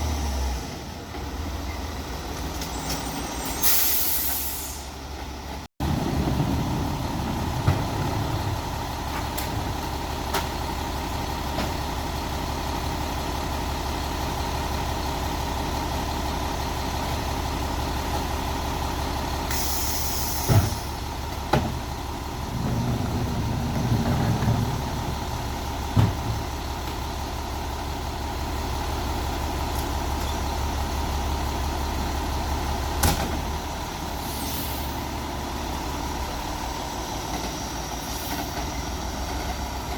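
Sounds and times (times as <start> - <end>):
garbage truck running: 0.0 - 39.9
air brake hiss: 3.1 - 5.0, 19.5 - 21.0, 34.1 - 35.1, 38.0 - 38.6.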